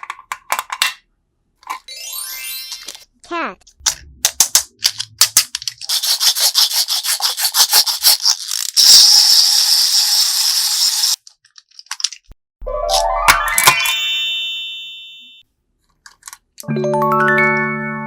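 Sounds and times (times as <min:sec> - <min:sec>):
rubbing or scraping strokes: 0:05.8 - 0:08.5.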